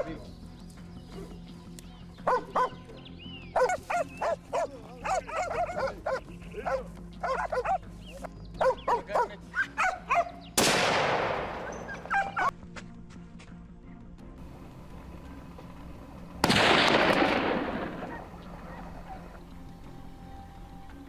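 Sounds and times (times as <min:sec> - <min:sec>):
dogs barking: 0:02.2 - 0:10.6, 0:11.6 - 0:12.6, 0:17.9 - 0:19.6
loud gunshot: 0:10.6 - 0:12.0, 0:16.4 - 0:18.2.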